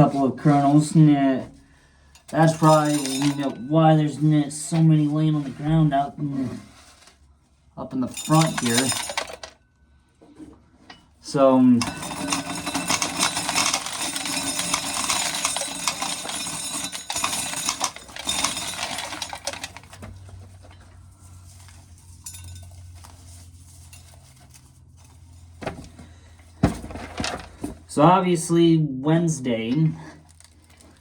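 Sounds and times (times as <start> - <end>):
corn kernels rattling on metal: 2.2 - 5.9, 8.0 - 9.6, 11.2 - 25.6.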